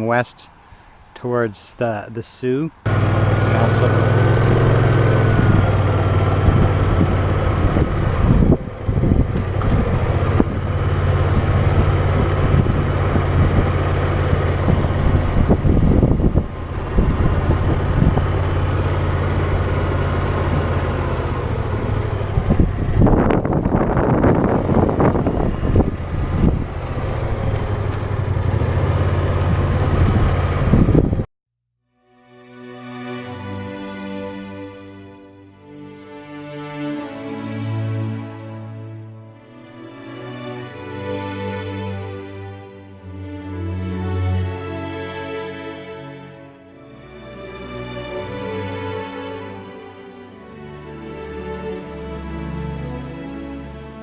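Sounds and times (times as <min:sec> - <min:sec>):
motorcycle engine running: 0:02.9 - 0:31.2
wind rushing over microphone: 0:04.4 - 0:31.3.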